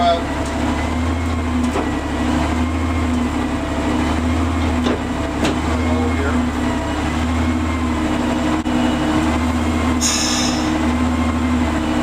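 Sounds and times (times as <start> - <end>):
locomotive engine running: 0.0 - 12.0
short hiss: 10.0 - 10.7.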